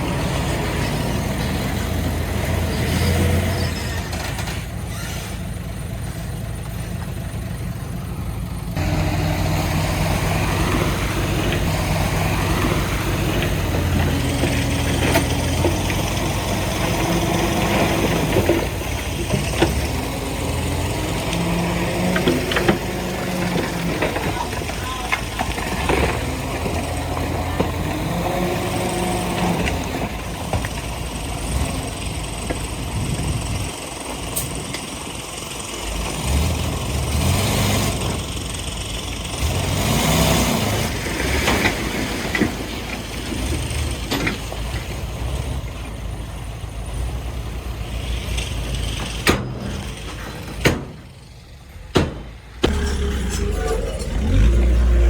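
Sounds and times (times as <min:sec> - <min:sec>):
heavy diesel machinery running: 0:00.0 - 0:55.0
sharp knocks: 0:51.9 - 0:52.8.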